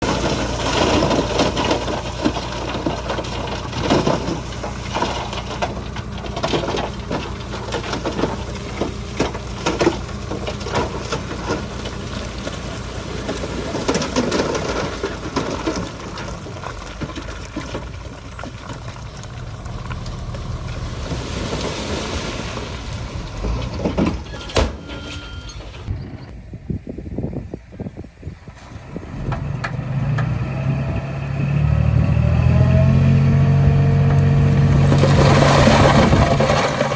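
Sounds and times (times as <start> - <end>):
metal and rock clanking: 0.0 - 26.3
bulldozer diesel engine running: 0.0 - 36.9.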